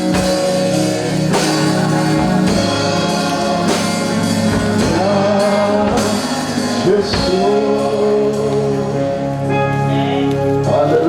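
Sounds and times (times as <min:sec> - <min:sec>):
worship band playing: 0:00.0 - 0:11.0
person singing long held notes: 0:00.7 - 0:11.0.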